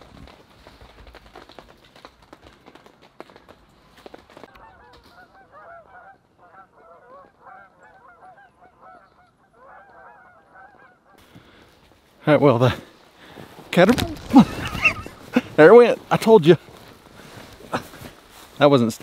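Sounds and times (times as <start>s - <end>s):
footsteps crunching through snow: 0.0s - 5.8s, 11.2s - 19.0s
geese honking: 4.5s - 11.2s.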